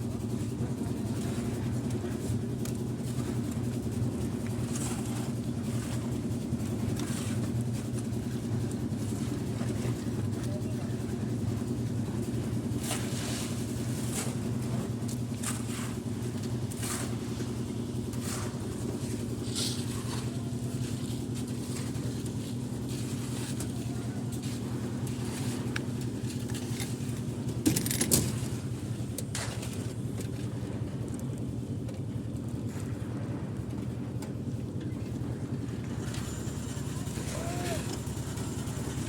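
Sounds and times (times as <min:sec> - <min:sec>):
construction machinery engine: 0:34.7 - 0:39.0.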